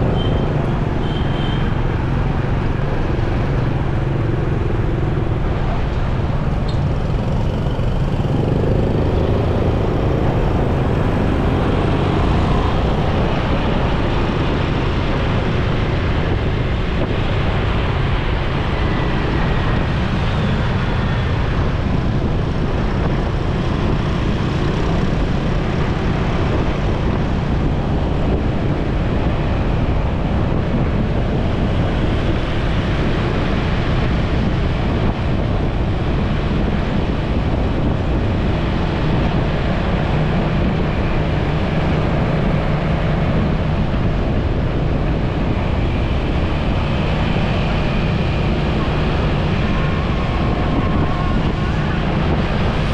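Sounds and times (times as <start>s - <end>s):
motorcycle engine: 0.0s - 14.1s
traffic rumble: 0.0s - 52.9s.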